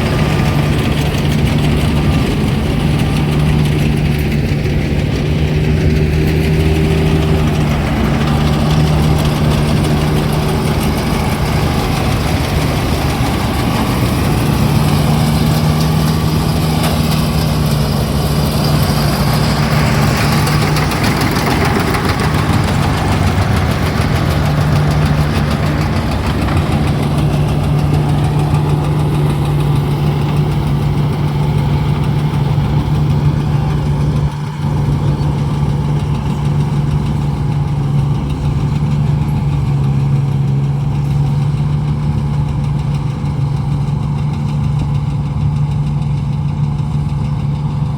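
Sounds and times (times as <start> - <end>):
engine running with clatter: 0.0 - 47.9.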